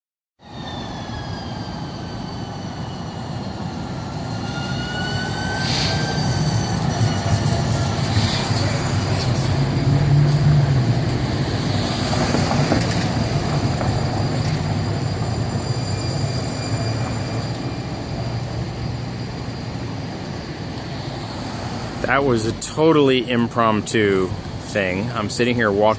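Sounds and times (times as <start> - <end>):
streetcar wheels squealing: 0.4 - 25.9
wheels rumbling on track: 0.4 - 25.9.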